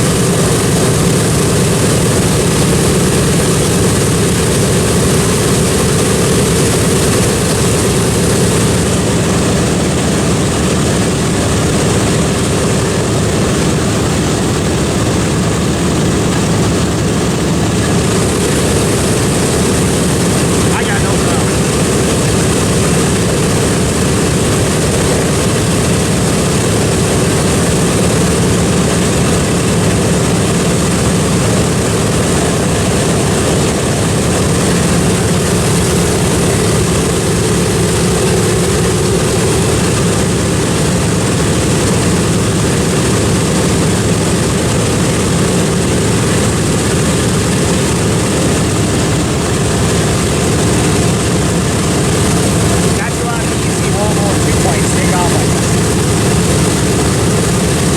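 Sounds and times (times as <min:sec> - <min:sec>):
propeller plane engines droning: 0:00.0 - 0:57.9.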